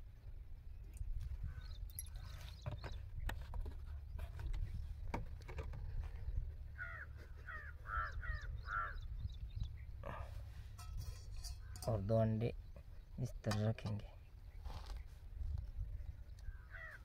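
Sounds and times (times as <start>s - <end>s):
bird cawing: 6.8s - 9.1s, 16.4s - 17.0s.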